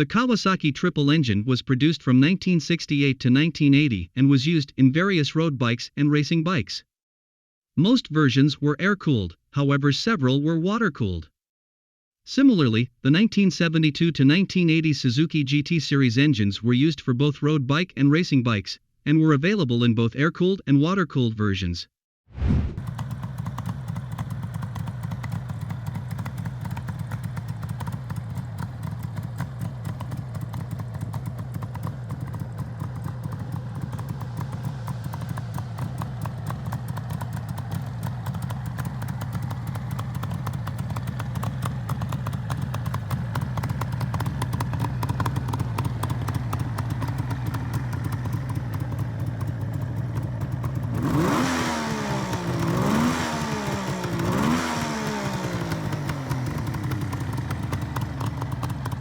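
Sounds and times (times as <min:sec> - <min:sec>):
motorcycle engine idling and revving: 0:22.8 - 0:59.0.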